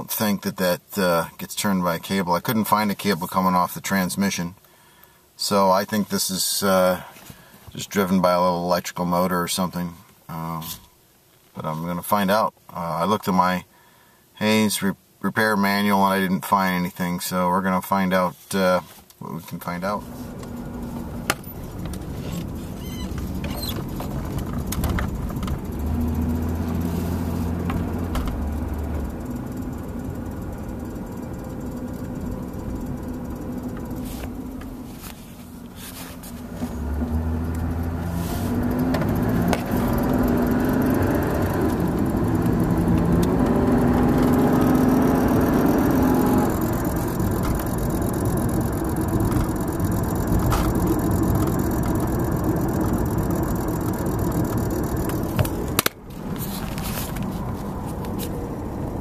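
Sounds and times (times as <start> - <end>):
car engine and road noise: 19.6 - 59.0.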